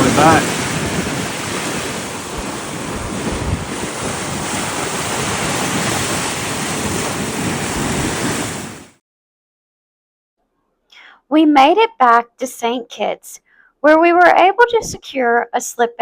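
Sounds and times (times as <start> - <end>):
wind buffeting microphone: 0.0 - 8.9, 14.7 - 15.0
water rushing along hull: 0.0 - 9.0.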